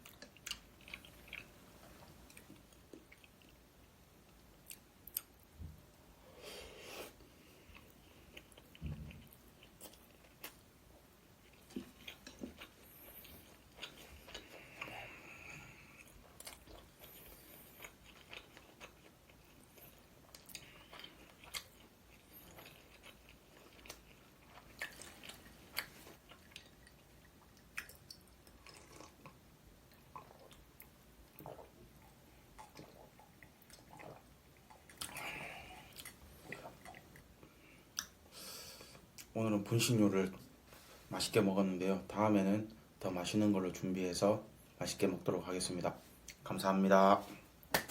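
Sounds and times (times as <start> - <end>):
person chewing food: 0.0 - 5.5, 6.9 - 39.3.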